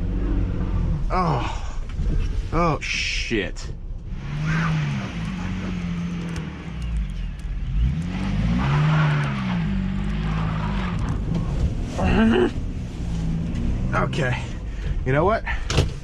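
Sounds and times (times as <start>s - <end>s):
van engine revving: 0.0s - 16.0s
wheels spinning on snow: 4.3s - 13.6s.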